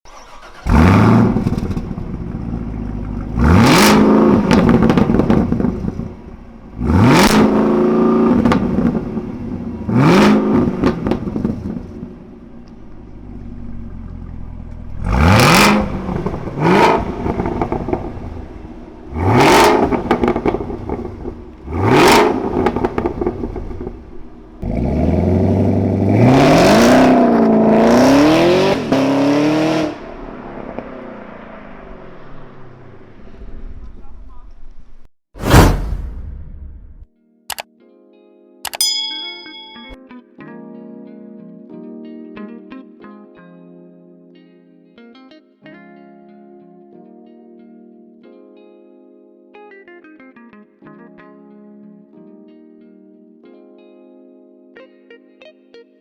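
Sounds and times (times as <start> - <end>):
car engine revving: 0.1 - 34.2.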